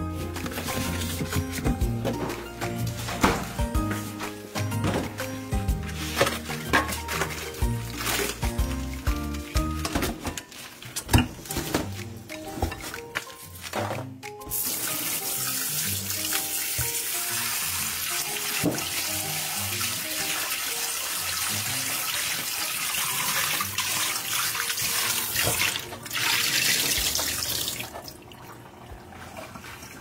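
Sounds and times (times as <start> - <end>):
tap water running into bowl: 14.5 - 30.0.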